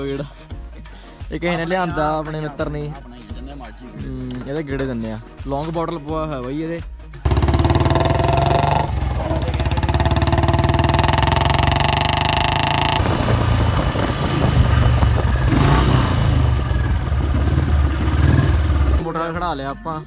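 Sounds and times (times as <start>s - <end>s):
motorcycle engine running: 7.3s - 19.1s.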